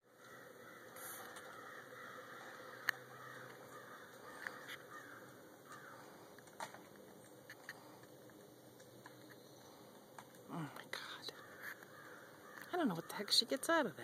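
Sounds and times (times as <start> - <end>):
faint bird calls: 0.1 - 6.4, 8.8 - 13.6.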